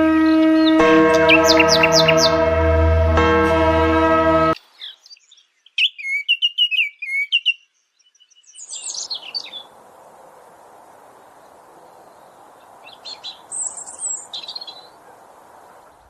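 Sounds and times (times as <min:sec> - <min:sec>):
sustained droning tone: 0:00.0 - 0:04.6
songbird chirping: 0:00.0 - 0:16.0
faint rushing background: 0:09.6 - 0:16.0.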